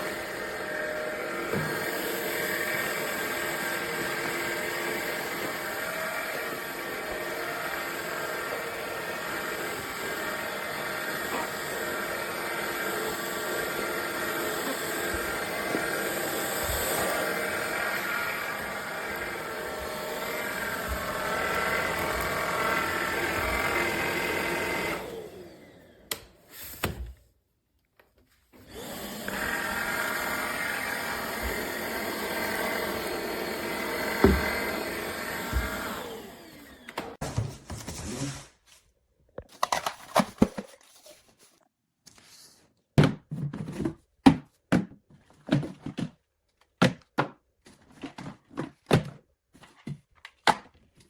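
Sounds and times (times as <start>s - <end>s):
stick vacuum cleaner running: 0.0s - 26.4s, 28.6s - 37.8s.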